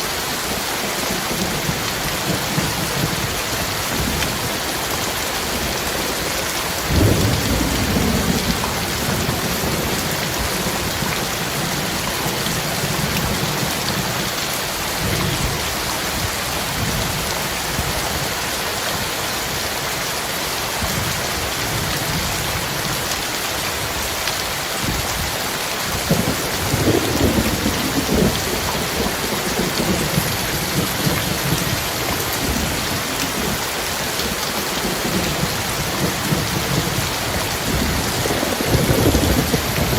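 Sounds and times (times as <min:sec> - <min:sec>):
heavy rain falling: 0:00.0 - 0:39.9
thunder rumbling: 0:01.3 - 0:14.3, 0:25.9 - 0:39.9.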